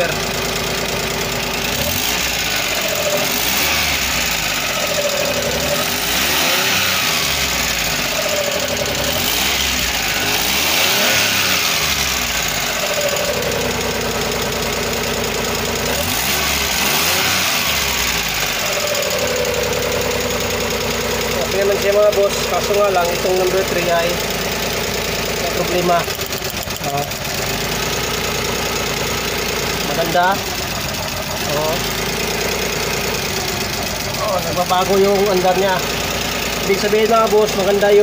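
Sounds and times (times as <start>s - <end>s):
truck engine revving: 0.0s - 38.0s.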